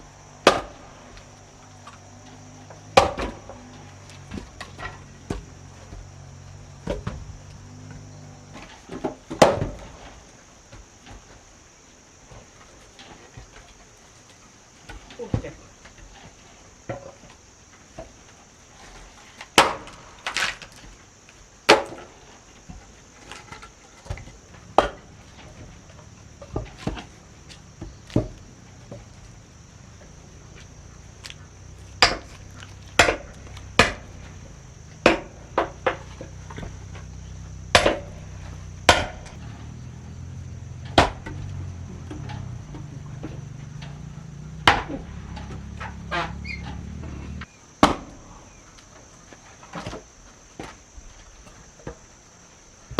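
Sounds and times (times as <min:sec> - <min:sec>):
sharp blows striking wood: 0:00.2 - 0:09.9, 0:19.6 - 0:20.7, 0:21.7 - 0:22.1, 0:23.6 - 0:29.2, 0:30.0 - 0:39.8, 0:40.8 - 0:47.1, 0:47.8 - 0:48.2.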